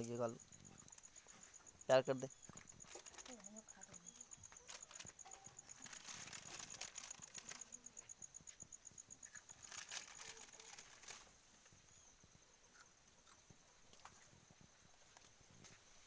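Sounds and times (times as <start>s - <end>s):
faint high-pitched chirping pulse: 0.0s - 15.6s
soft rustles and clicks: 0.0s - 16.0s.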